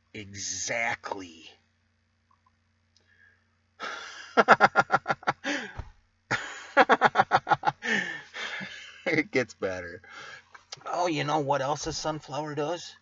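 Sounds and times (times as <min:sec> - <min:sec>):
man's pulsed breathy exhalations: 0:05.4 - 0:05.9.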